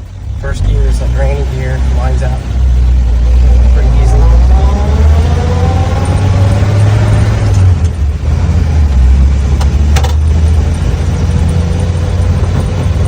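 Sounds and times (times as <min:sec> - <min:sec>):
rising engine whine: 0:00.0 - 0:13.0
truck engine running: 0:00.0 - 0:13.0.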